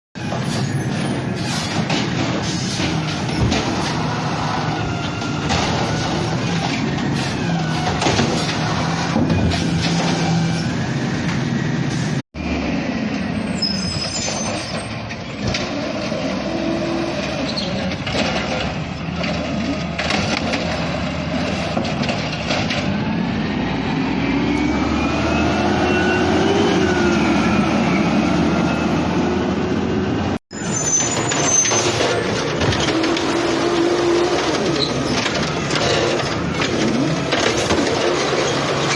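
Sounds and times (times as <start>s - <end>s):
garbage truck diesel engine: 0.1s - 38.9s.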